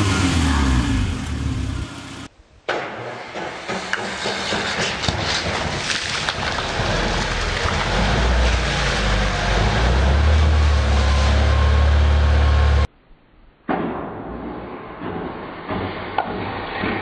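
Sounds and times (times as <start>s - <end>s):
car engine running: 0.0s - 2.3s
foam hissing and splashing: 3.8s - 11.5s.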